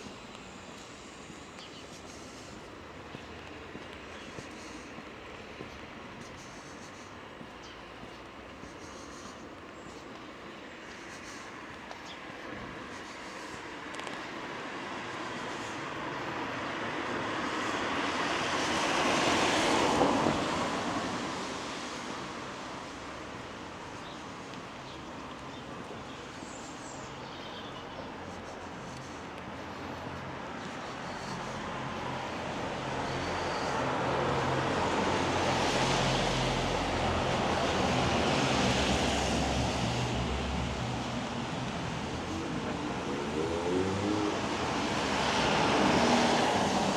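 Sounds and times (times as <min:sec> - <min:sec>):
traffic engine hum: 0:00.0 - 0:46.9
vehicle tyres hissing on wet road: 0:10.0 - 0:24.9, 0:25.5 - 0:46.9.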